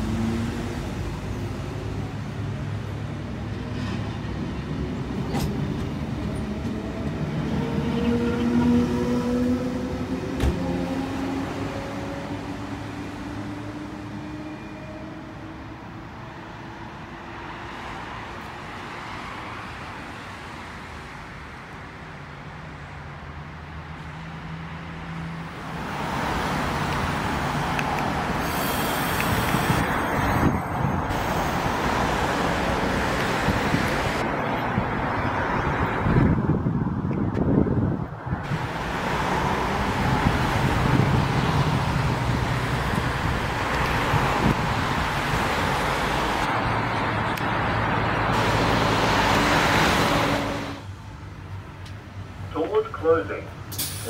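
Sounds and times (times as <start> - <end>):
train braking to a stop: 28.4 - 31.8.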